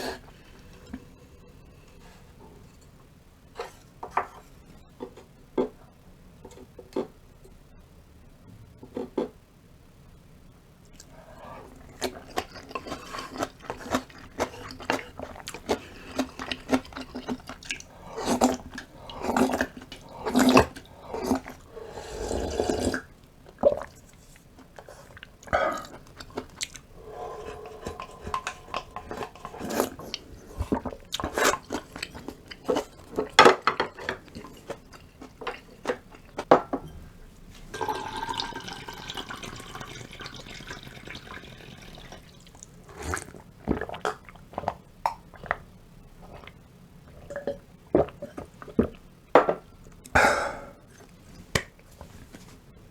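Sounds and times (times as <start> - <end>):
mouth chewing wetly: 11.0 - 36.5, 38.6 - 49.2
slurping rush: 26.9 - 31.5
utensils tapping dishes: 27.4 - 29.7.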